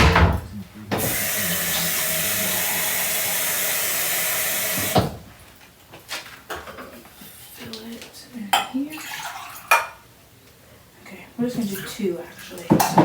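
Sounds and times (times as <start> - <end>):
water running from a tap: 1.0 - 5.2, 8.9 - 9.8.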